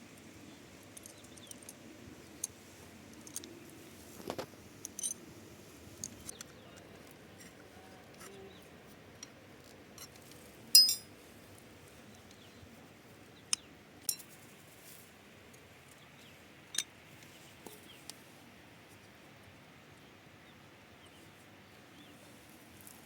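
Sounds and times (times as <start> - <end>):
metal tools clinking: 10.8 - 11.1.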